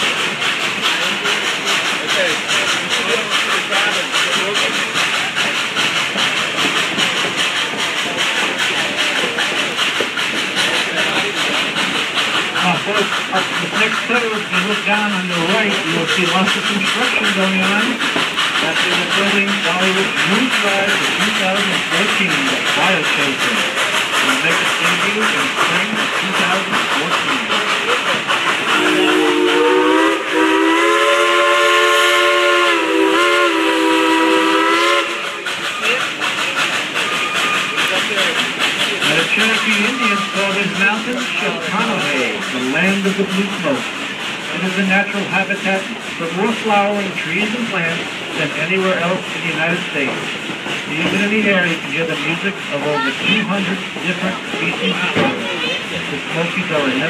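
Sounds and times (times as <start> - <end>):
steam train hissing rhythmically: 0.0 - 57.0
steam locomotive whistle: 28.7 - 35.9.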